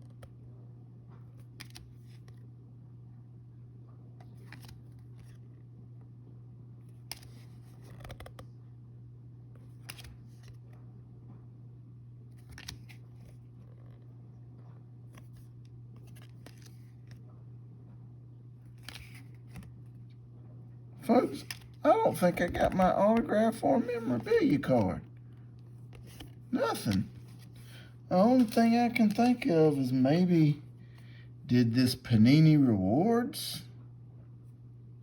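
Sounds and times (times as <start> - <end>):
steady low hum: 0.0 - 35.0
cards rustling and tapping: 1.2 - 2.4, 4.2 - 5.6, 6.9 - 8.4, 9.6 - 10.8, 12.3 - 14.0, 15.0 - 17.3, 18.7 - 20.0, 21.0 - 29.5.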